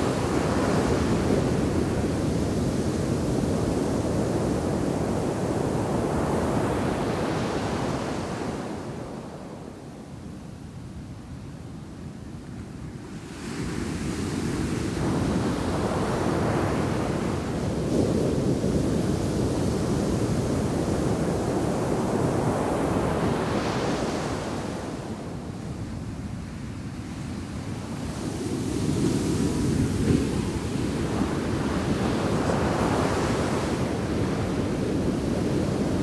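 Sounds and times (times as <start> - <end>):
waves crashing on sand beach: 27.9 - 36.0.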